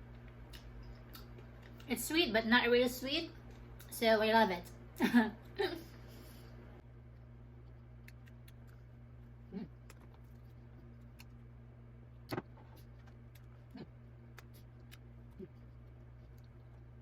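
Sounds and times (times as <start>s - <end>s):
soft chewing mouth sounds: 0.0s - 1.9s, 7.1s - 11.6s, 12.7s - 17.0s
low electrical hum: 0.0s - 17.0s.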